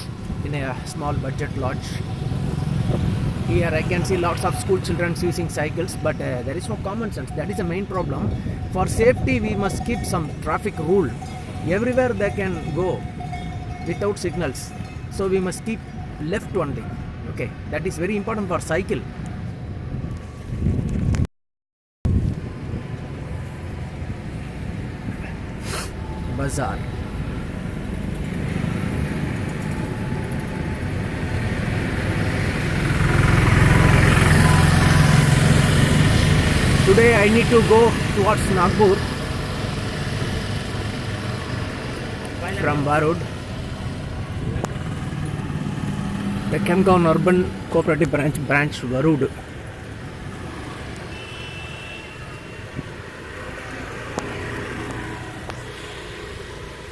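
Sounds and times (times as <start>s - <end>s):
street traffic: 0.0s - 21.3s, 22.1s - 56.9s
vehicle passing: 22.4s - 51.1s, 52.1s - 56.9s.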